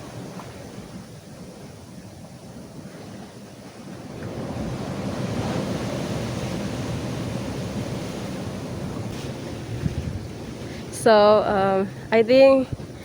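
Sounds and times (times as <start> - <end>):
ocean surf on rocks: 0.0 - 13.0
wind on microphone: 0.0 - 13.0.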